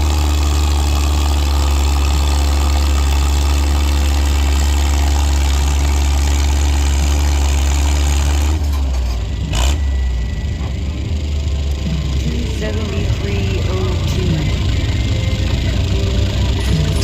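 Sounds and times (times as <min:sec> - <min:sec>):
tractor engine running under load: 0:00.0 - 0:17.0.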